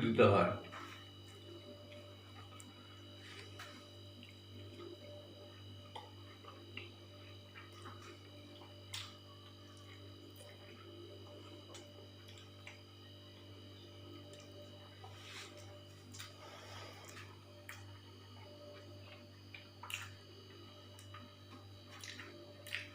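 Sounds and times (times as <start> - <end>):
steady low hum: 0.0 - 22.9
chewing clicks: 7.6 - 10.6, 17.0 - 20.2, 20.9 - 22.9.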